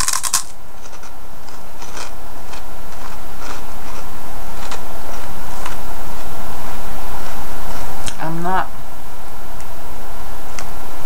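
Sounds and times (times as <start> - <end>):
crunchy food chewing: 0.0 - 8.1.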